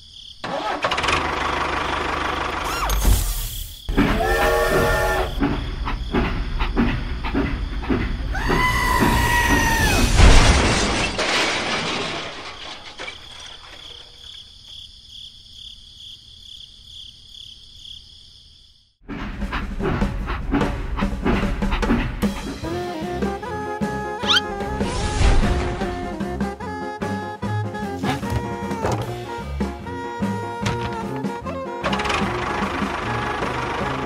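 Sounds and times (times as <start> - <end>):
wheels clattering on track: 3.9 - 14.4, 19.2 - 22.7, 30.3 - 34.0
train horn blasts: 4.1 - 5.4
loud crash: 9.0 - 14.2, 24.7 - 26.2.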